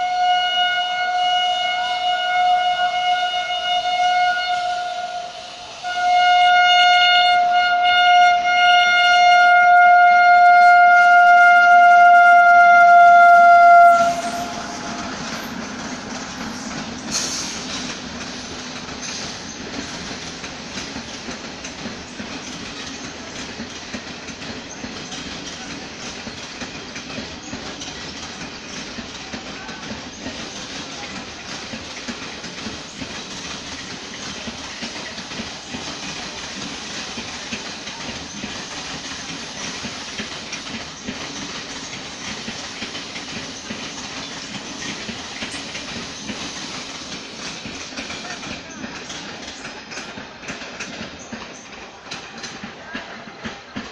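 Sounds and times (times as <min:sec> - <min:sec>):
train horn blast: 0:00.0 - 0:17.8
train wheels rumbling on rails: 0:00.0 - 0:53.9.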